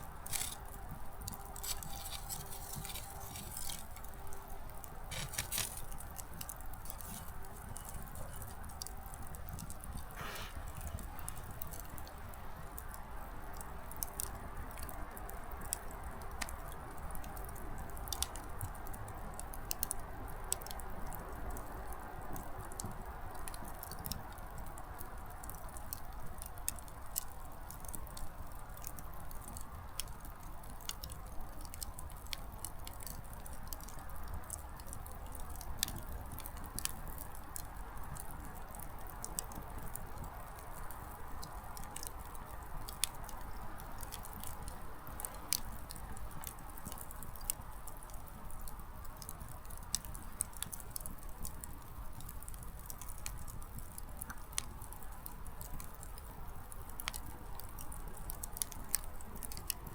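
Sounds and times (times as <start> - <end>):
campfire crackling: 0.0 - 59.9
firewood snapping pops: 0.2 - 0.8.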